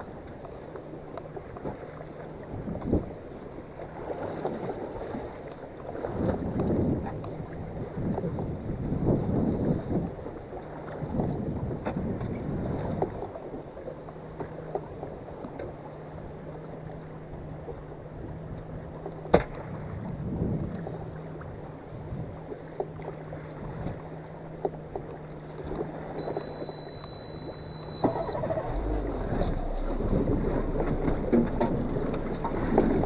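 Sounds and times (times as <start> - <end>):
boat engine humming: 0.0 - 33.0
water noise: 0.0 - 33.0
wind: 0.0 - 33.0
high steady beep: 26.2 - 28.9.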